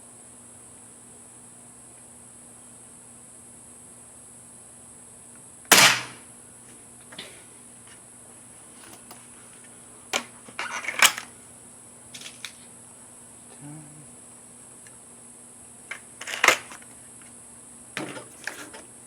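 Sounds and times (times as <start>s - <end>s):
air rifle shot: 5.7s - 6.3s
rifle handling clicks and rattles: 8.8s - 9.2s, 10.2s - 11.3s, 12.2s - 12.7s, 15.9s - 16.9s.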